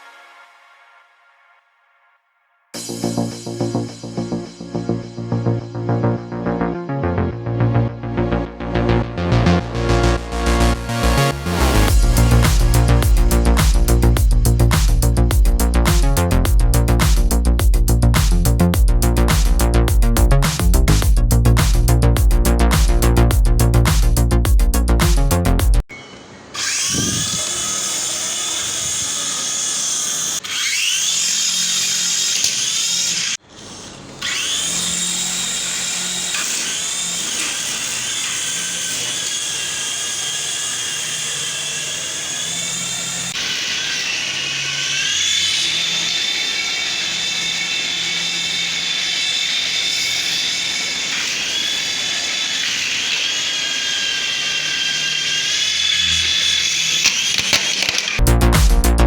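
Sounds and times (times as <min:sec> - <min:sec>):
small electric motor whine: 0:09.8 - 0:16.3, 0:26.6 - 0:58.2.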